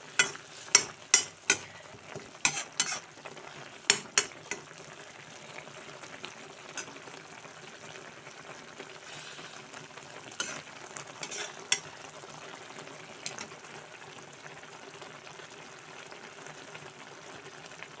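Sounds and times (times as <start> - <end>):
leaves sizzling in hot oil: 0.0 - 18.0
spatula clicking against pan: 0.2 - 1.7, 3.9 - 4.6.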